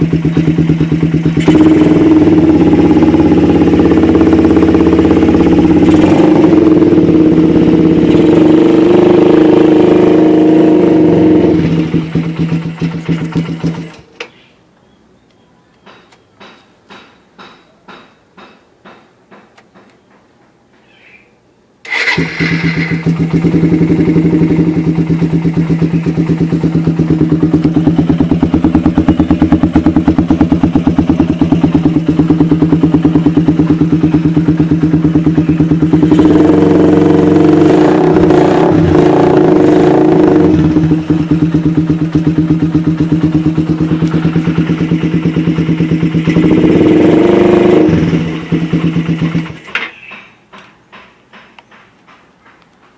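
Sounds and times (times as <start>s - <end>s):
motorcycle engine idling and revving: 0.0s - 14.2s, 21.9s - 52.9s.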